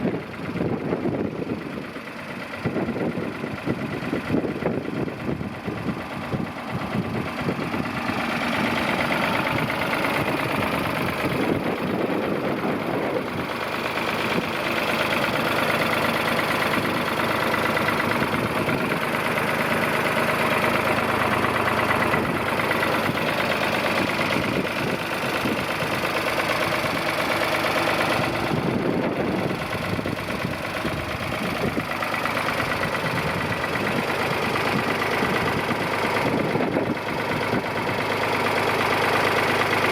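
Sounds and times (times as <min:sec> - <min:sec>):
tractor engine idling: 0:00.0 - 0:39.9.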